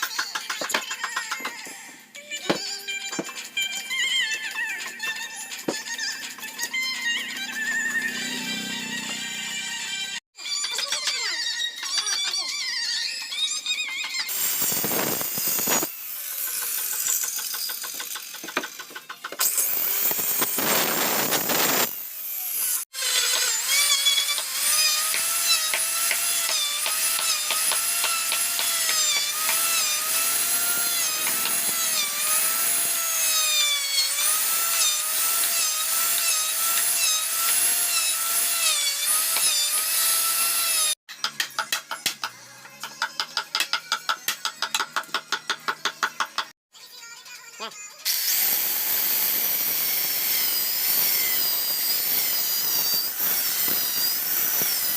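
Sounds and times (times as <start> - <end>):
power tool cutting wood: 5.7 - 10.2, 14.1 - 46.2, 48.0 - 54.9.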